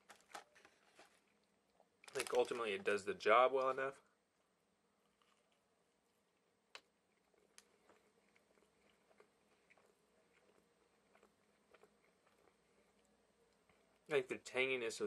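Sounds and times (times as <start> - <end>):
faint chewing: 5.0 - 5.7, 6.3 - 14.1.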